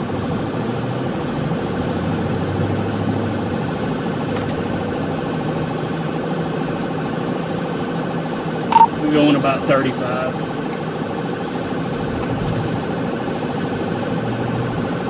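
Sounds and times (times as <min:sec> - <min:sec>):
car engine at speed: 0:00.0 - 0:15.0
road noise: 0:00.0 - 0:15.0.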